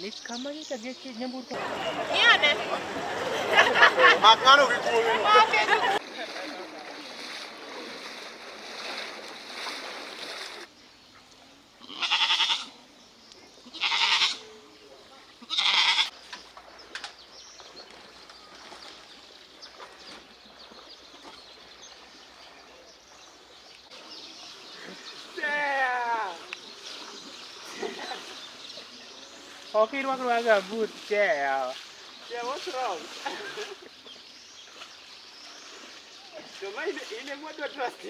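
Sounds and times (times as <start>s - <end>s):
goat bleating: 11.8s - 12.7s, 13.7s - 14.4s, 15.4s - 16.1s.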